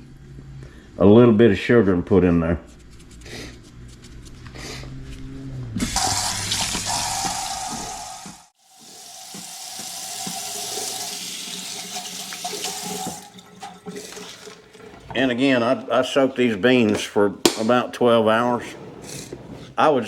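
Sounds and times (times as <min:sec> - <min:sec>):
water running from faucet: 0:05.9 - 0:14.7.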